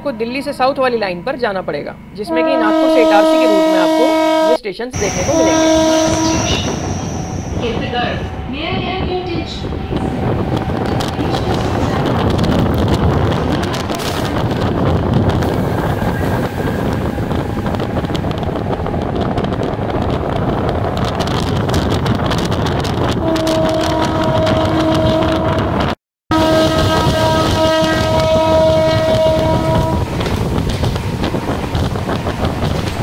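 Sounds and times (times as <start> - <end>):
electric train running: 2.0 - 33.0
train horn chord: 2.2 - 14.3, 23.1 - 30.4
wind buffeting microphone: 2.3 - 33.0.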